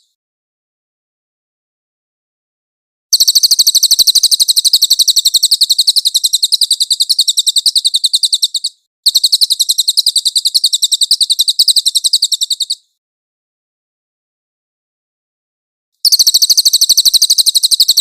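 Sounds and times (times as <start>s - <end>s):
songbird high rolling trill: 3.2s - 12.8s, 16.0s - 18.0s.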